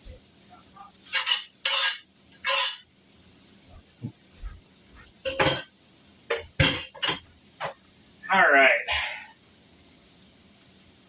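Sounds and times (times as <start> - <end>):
vegetables sizzling in a pan: 0.0 - 8.2, 9.4 - 11.0
spatula scraping a pan: 1.0 - 2.9.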